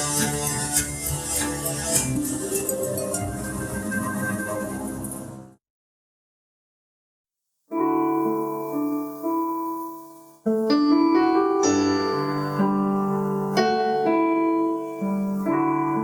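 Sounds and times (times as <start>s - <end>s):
piano playing slow chords: 7.7s - 16.0s.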